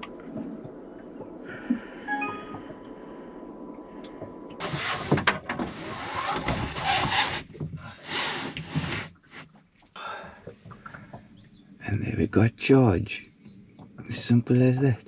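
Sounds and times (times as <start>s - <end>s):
scraping and rustling: 4.6s - 9.6s.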